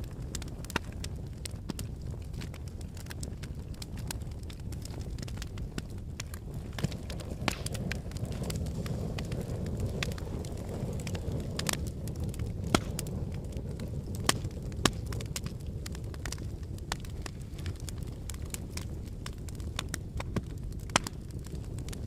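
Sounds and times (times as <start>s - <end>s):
logs crackling and popping: 0.0s - 22.0s
rumble of flames: 0.0s - 22.0s.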